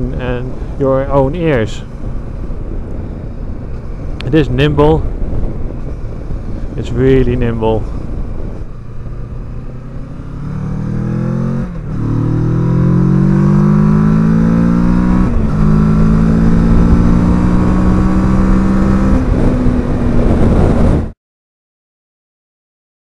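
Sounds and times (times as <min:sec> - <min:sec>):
motorcycle engine accelerating: 0:07.8 - 0:21.2.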